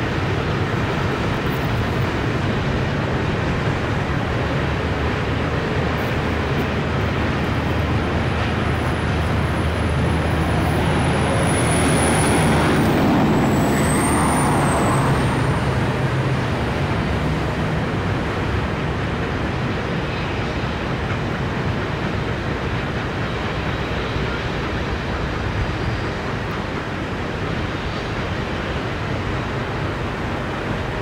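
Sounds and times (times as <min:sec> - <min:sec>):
freight train rumbling past: 0:00.0 - 0:31.0
river rapids rushing: 0:02.1 - 0:19.2
thin high whine: 0:08.3 - 0:16.5.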